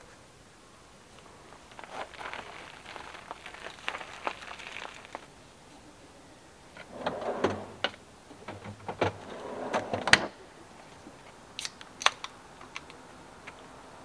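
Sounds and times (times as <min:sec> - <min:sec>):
rustling and handling noises: 0:01.1 - 0:05.8.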